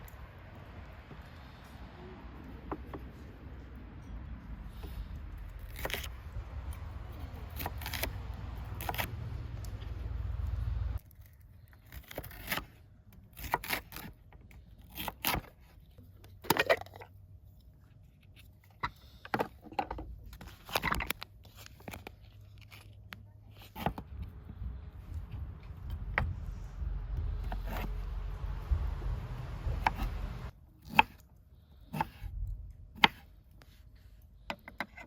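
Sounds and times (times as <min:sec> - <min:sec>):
objects handled with clicks and scrapes: 0:01.1 - 0:35.0
low rumble: 0:03.3 - 0:11.0, 0:24.0 - 0:30.5.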